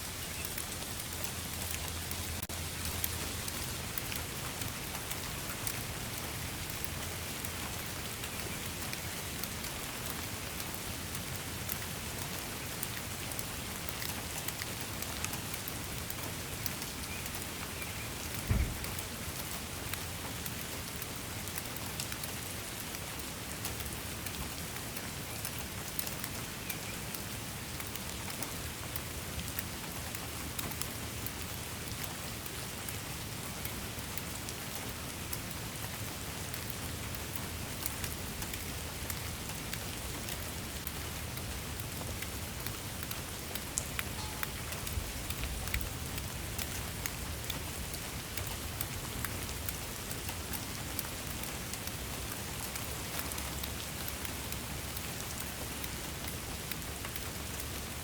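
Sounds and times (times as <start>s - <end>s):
steady rain falling: 0.0s - 58.0s
low thump: 18.5s - 18.9s.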